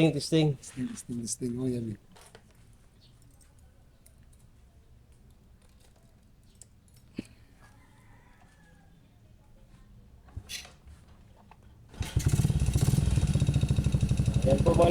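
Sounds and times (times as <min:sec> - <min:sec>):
rooster crowing: 0:07.6 - 0:09.0.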